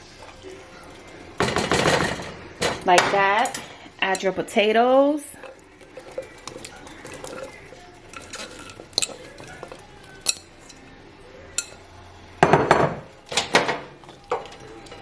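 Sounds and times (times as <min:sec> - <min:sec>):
kitchenware clinking: 0:00.0 - 0:15.0
knocks against a pot: 0:12.4 - 0:14.5.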